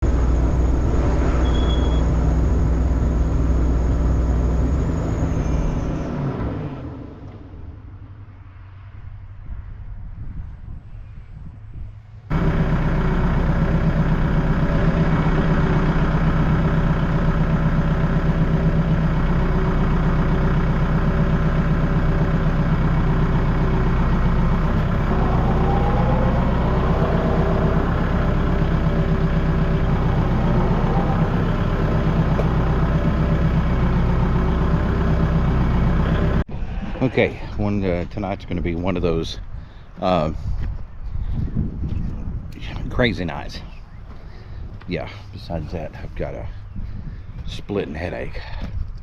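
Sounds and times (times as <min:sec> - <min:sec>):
vehicle engine running steadily: 0:00.0 - 0:06.1, 0:11.4 - 0:36.5.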